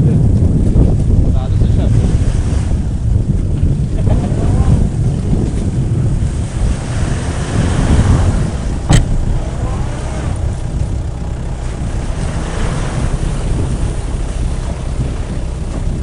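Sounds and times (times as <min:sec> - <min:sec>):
off-road vehicle engine running hard: 0:05.3 - 0:16.0
sharp knock: 0:08.9 - 0:09.3.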